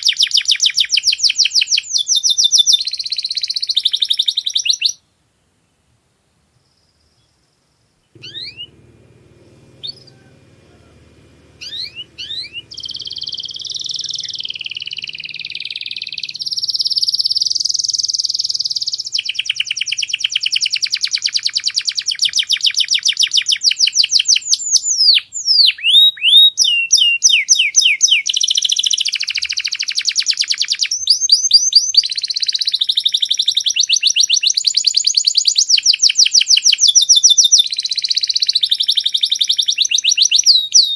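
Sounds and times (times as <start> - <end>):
canary singing: 0.0 - 5.0, 8.1 - 40.9.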